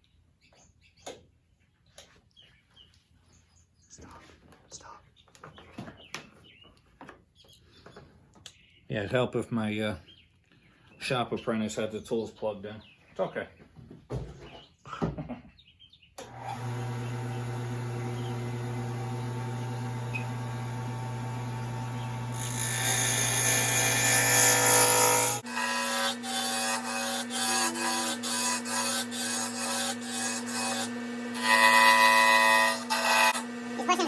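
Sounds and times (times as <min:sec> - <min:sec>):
wood lathe humming: 0:16.2 - 0:34.0
tool scraping spinning wood: 0:16.3 - 0:34.0.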